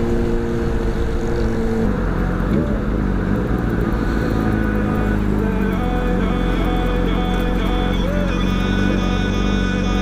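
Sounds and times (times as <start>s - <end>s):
motorcycle engine: 0.0s - 10.0s
road and wind noise: 0.0s - 10.0s.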